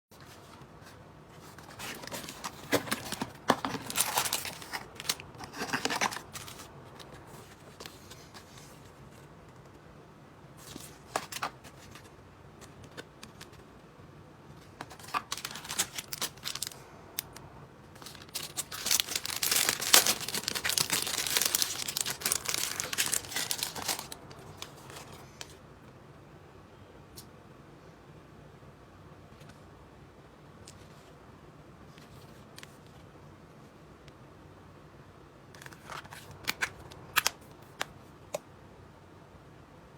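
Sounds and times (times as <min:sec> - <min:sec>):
packaging crinkling and rustling: 0:01.4 - 0:09.3, 0:14.6 - 0:17.3, 0:17.9 - 0:25.6
packaging tearing: 0:01.8 - 0:06.6, 0:14.9 - 0:16.8, 0:18.0 - 0:25.1.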